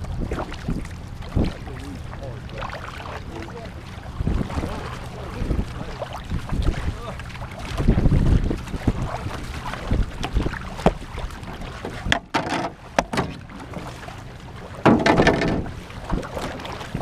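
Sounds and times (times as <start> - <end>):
canoe paddles splashing: 0.0 - 17.0
rush of water or wind: 0.0 - 17.0
water slapping against a hull: 0.0 - 17.0
sharp knocks: 12.1 - 13.4, 14.8 - 15.7.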